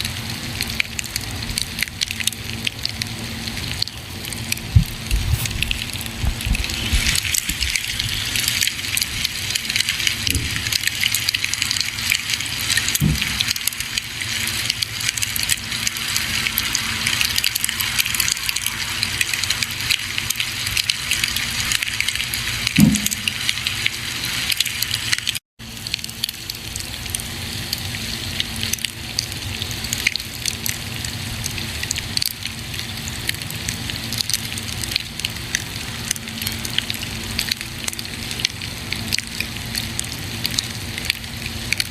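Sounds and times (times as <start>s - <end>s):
campfire crackling: 0.2s - 27.3s
campfire pops: 4.2s - 18.6s, 22.6s - 24.0s.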